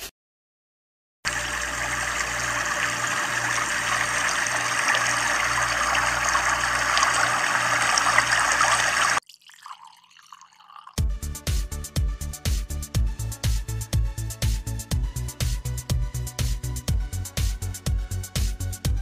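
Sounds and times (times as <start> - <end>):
water boiling hard: 1.3 - 11.0.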